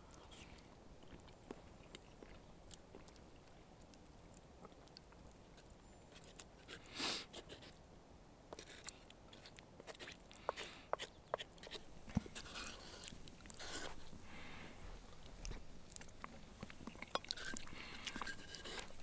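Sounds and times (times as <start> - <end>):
rustle: 8.5 - 19.0.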